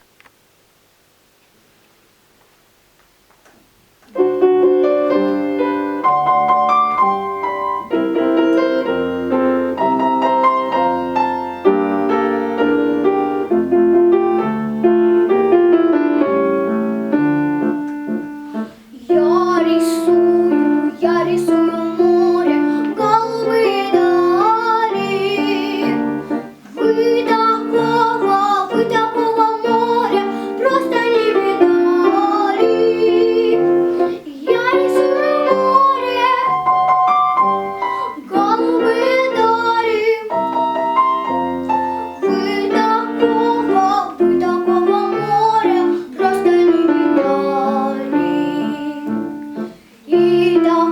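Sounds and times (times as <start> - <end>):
piano playing: 4.1 - 50.9
child singing: 8.1 - 9.1, 18.9 - 50.9.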